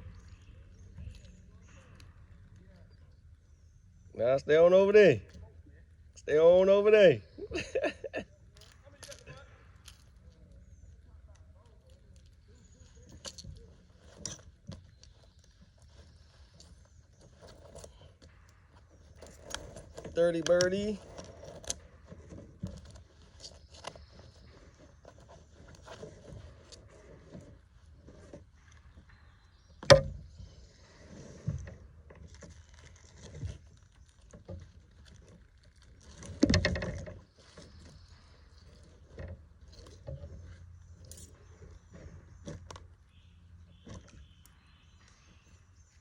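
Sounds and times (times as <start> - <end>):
fishing gear knocking and rattling: 31.4 - 42.9.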